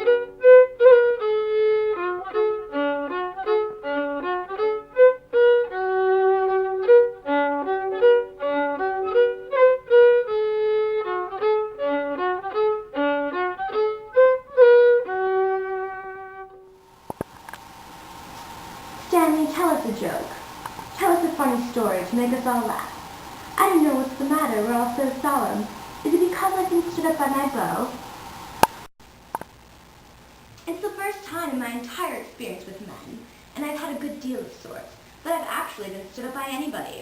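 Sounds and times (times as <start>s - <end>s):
solo violin melody: 0.0s - 16.7s, 17.7s - 28.4s.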